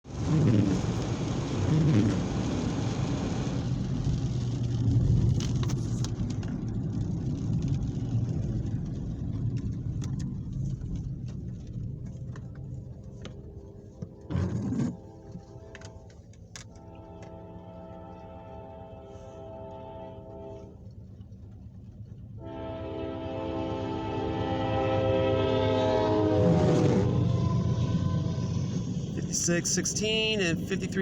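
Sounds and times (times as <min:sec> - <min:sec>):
vehicle engine hum: 0:00.0 - 0:31.0.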